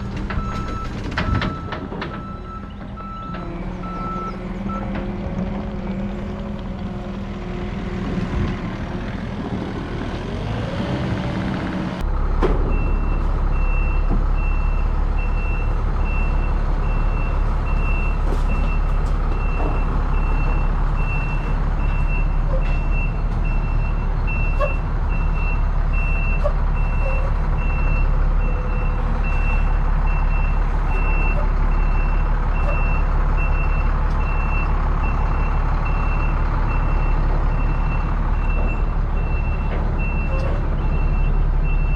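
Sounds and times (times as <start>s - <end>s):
diesel machine engine running: 0.0s - 41.9s.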